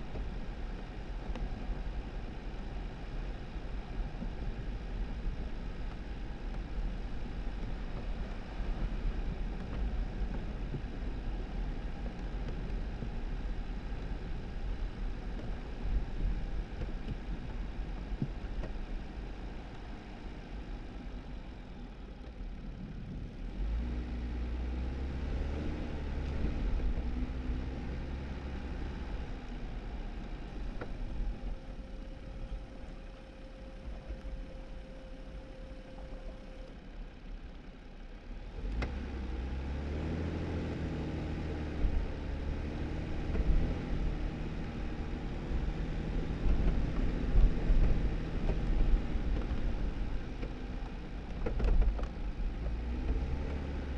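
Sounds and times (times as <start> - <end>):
tyres and engine rumbling: 0.0 - 53.9
faint steady tone: 26.1 - 38.4.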